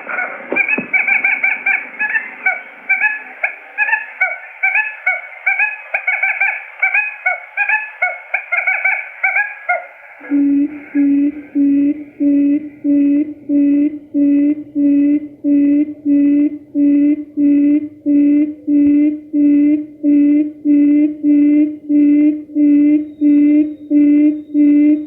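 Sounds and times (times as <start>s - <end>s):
high chattering quail calls: 0.0s - 13.2s
low hooting note: 10.2s - 25.0s.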